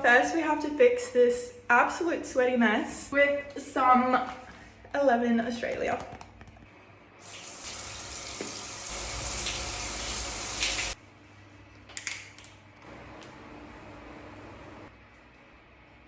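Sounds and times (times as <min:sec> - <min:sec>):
water running from a tap: 0:07.2 - 0:11.0.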